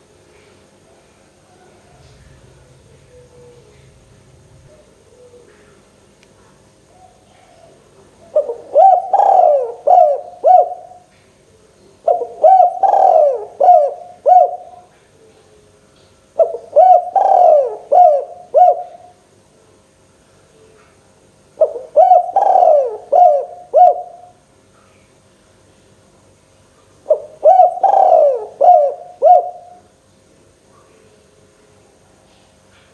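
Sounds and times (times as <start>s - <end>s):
dove cooing: 1.4s - 5.9s, 6.9s - 11.1s, 12.0s - 15.7s, 16.4s - 19.2s, 21.6s - 24.4s, 27.1s - 29.9s.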